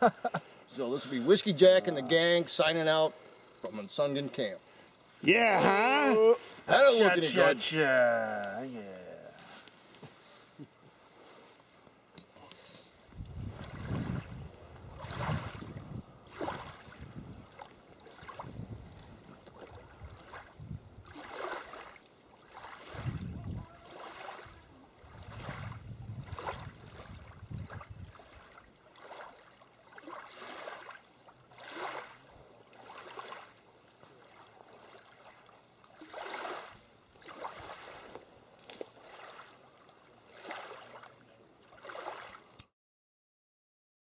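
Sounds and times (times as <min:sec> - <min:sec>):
wind rumbling on microphone: 0:13.1 - 0:21.2, 0:22.9 - 0:23.8, 0:24.4 - 0:28.4
water swishing and splashing: 0:13.1 - 0:42.7.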